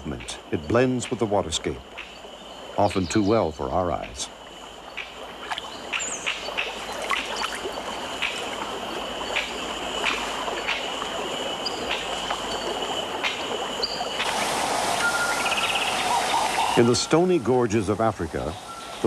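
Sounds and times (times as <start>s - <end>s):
stream water flowing: 0.0s - 19.0s
steady high tone: 15.0s - 18.9s.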